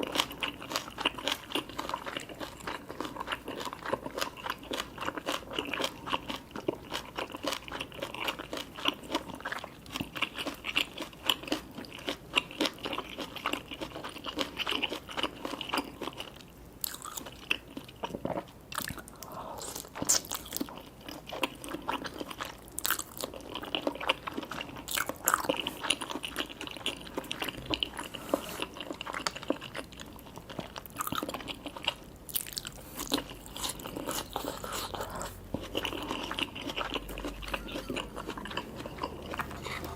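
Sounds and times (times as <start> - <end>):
crunchy bites and chewing: 28.7 - 39.9.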